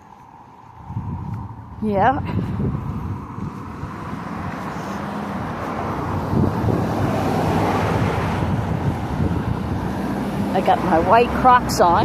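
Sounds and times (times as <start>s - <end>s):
car passing: 0.0s - 12.0s
wind buffeting microphone: 0.0s - 12.0s.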